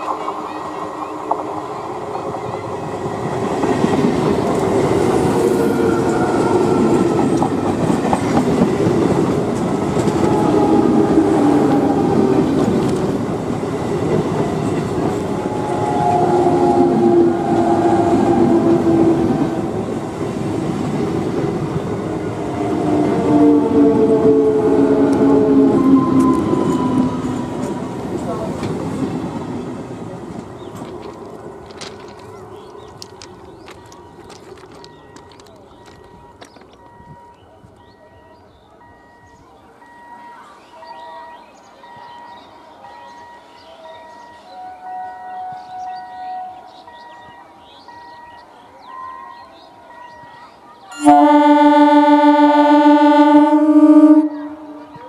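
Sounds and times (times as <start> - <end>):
train wheels clattering on rails: 0.0 - 16.8, 24.9 - 38.0
pitched tones: 34.8 - 55.0.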